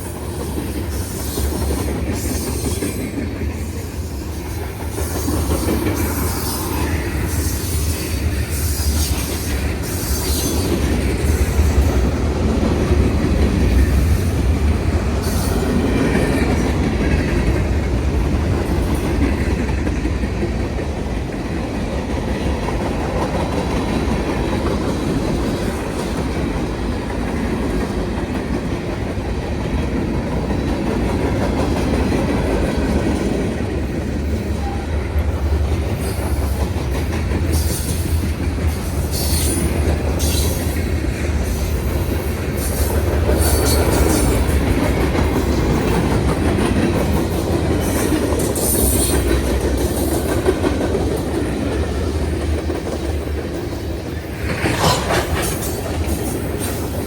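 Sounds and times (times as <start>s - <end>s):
train wheel squeals: 0.0s - 12.1s, 13.6s - 16.8s, 34.0s - 50.4s, 53.6s - 57.0s
train wheels clacking rumble: 0.0s - 57.0s.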